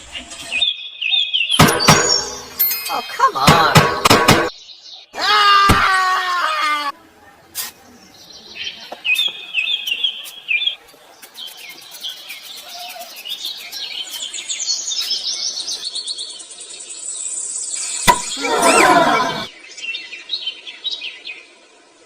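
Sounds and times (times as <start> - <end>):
small birds chirping: 7.2 - 22.0.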